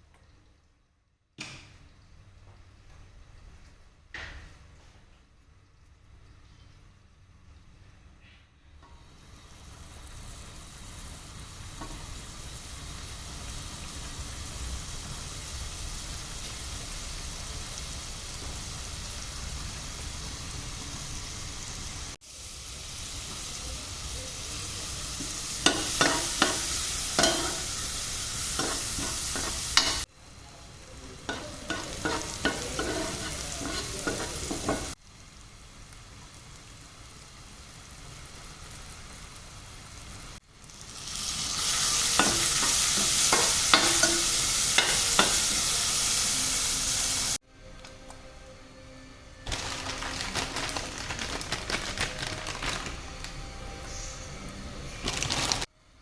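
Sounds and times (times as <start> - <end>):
food sizzling in a frying pan: 9.0 - 47.4
utensil scraping a pan: 31.3 - 35.0.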